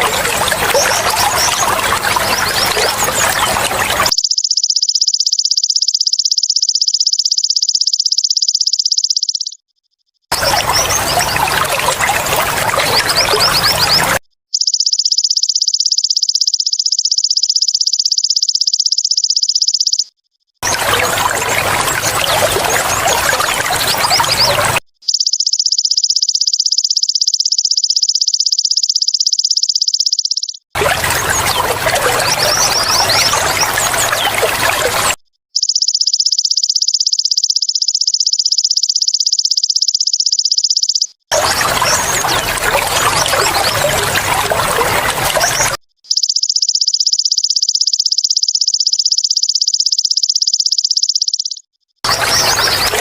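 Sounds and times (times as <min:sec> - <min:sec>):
trickling water: 0:00.0 - 0:04.2, 0:10.3 - 0:14.2, 0:20.6 - 0:24.8, 0:30.8 - 0:35.2, 0:41.3 - 0:45.8, 0:52.1 - 0:53.0
small high chirps: 0:00.0 - 0:44.5, 0:45.3 - 0:53.0
grasshopper high-pitched trill: 0:04.1 - 0:09.6, 0:14.5 - 0:20.3, 0:25.0 - 0:30.7, 0:35.6 - 0:41.1, 0:46.1 - 0:52.8.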